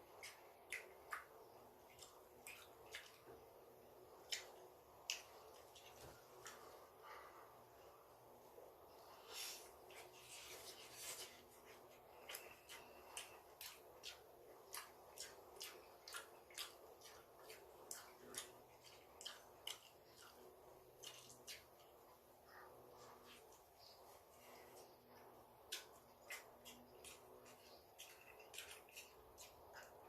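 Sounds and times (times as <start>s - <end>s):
chewing mouth clicks: 12.1s - 22.2s, 25.6s - 30.0s.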